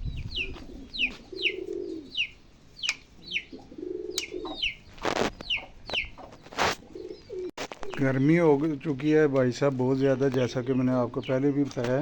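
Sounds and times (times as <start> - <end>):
birds chirping high falling: 0.0 - 12.0
pigeons cooing: 0.1 - 8.1.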